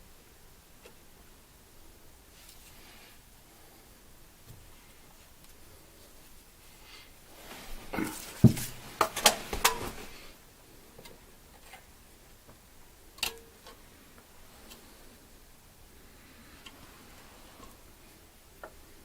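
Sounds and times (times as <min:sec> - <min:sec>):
clicks and knocks of tools: 0:13.2 - 0:13.8.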